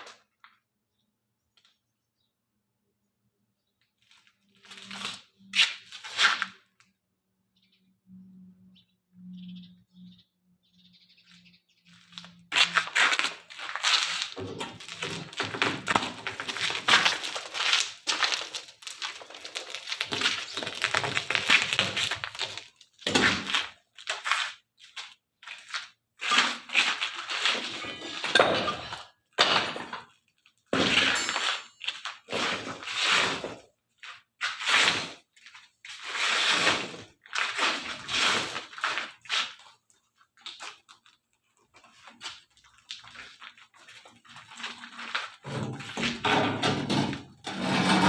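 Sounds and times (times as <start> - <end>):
rubble crashing and clattering: 12.9 - 23.8, 26.8 - 33.0, 44.3 - 48.0.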